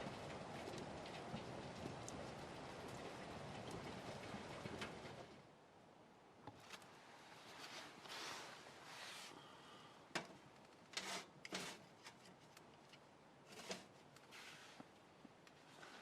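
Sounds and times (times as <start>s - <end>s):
faint short rustles: 6.6s - 9.4s, 13.5s - 15.0s.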